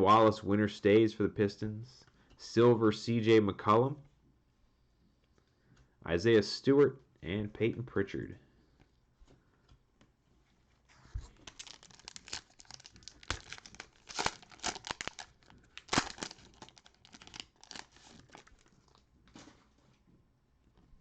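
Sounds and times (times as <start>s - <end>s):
wrapper rustling: 11.0s - 19.8s
cellophane wrapper tearing: 11.3s - 19.5s.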